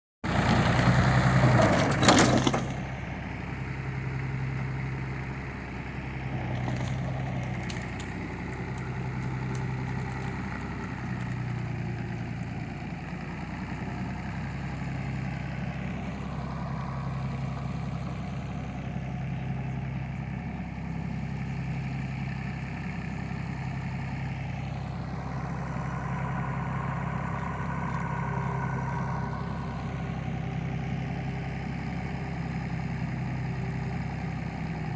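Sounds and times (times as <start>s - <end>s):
engine idling: 0.2s - 34.9s.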